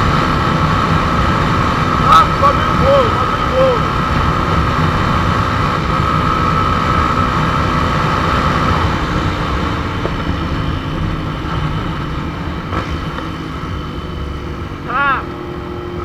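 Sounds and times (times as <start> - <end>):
steady whine: 0.0 - 5.9
motorcycle engine running: 0.0 - 16.0.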